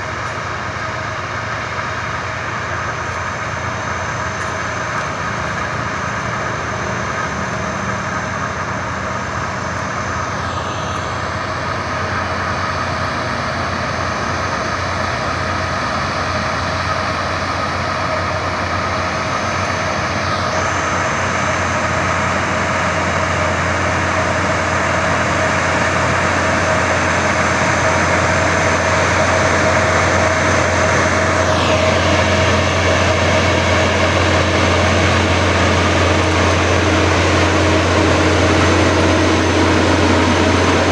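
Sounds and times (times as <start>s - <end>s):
heavy diesel engine humming: 0.0s - 40.9s.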